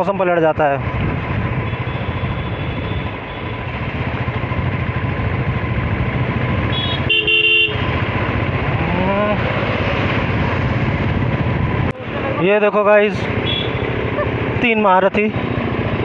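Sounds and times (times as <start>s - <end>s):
motorcycle engine and road noise: 0.0s - 16.0s
vehicle horn honking: 1.7s - 3.6s, 6.7s - 8.0s, 13.4s - 14.3s.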